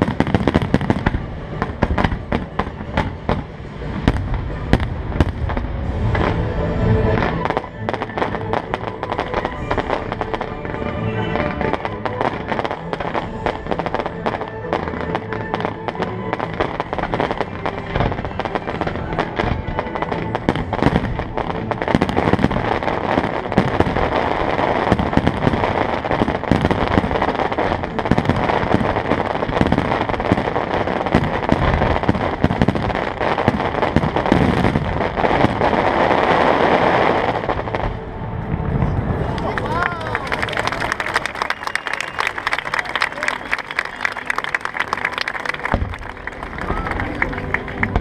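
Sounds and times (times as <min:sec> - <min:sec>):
fireworks bangs and crackles: 0:00.0 - 0:48.0
show music: 0:00.0 - 0:48.0.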